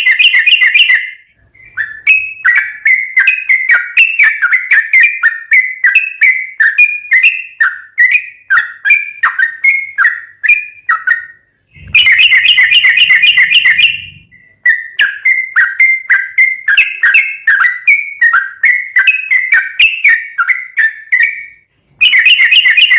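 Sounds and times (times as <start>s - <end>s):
bulbul calling in falling chirps: 8.9s - 17.9s
bird chattering: 10.9s - 17.8s.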